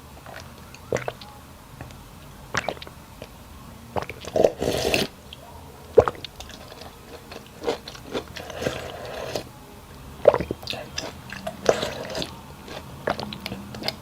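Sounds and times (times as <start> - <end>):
person chewing and biting: 6.0 - 9.5, 10.2 - 14.0.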